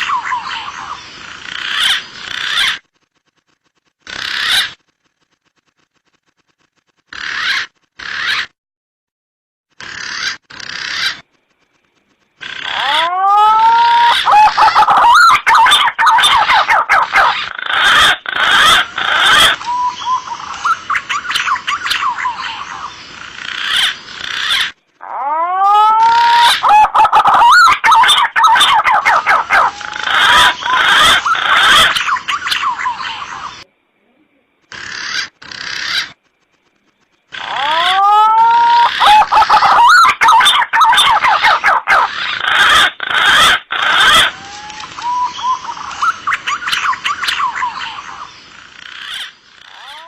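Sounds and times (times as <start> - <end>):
pigeon whistled calls: 25.7 - 33.3, 37.6 - 48.0.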